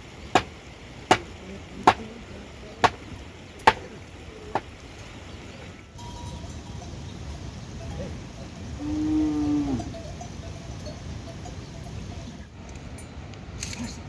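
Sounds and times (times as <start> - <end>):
sharp chopping blows: 0.4 - 1.3, 3.6 - 3.8.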